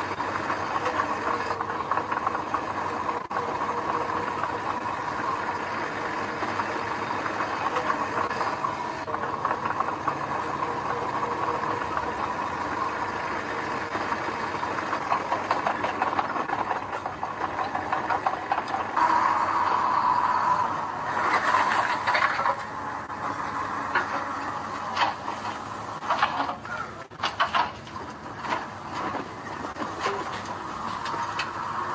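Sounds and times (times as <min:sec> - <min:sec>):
diesel engine of heavy machinery: 0:00.0 - 0:31.9
metallic rattling and clanking: 0:21.1 - 0:31.5.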